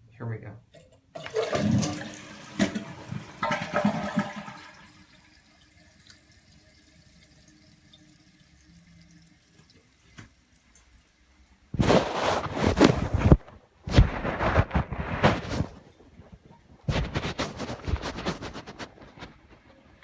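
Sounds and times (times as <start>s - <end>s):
water running: 0.8s - 13.4s
toilet flushing: 1.1s - 12.8s.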